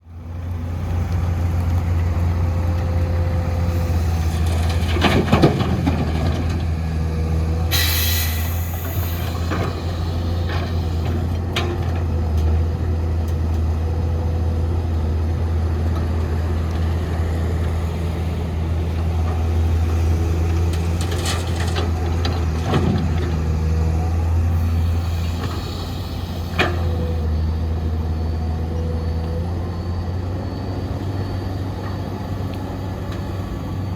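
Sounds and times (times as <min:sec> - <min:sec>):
diesel machinery droning: 0:00.0 - 0:33.9
released air hiss: 0:07.7 - 0:11.0, 0:24.6 - 0:26.9.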